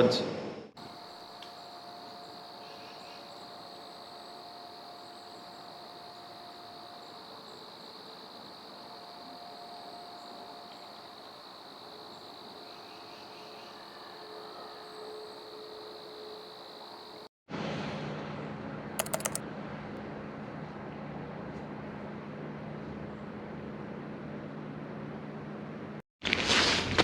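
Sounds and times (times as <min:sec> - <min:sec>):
crickets chirping: 0:00.8 - 0:17.3.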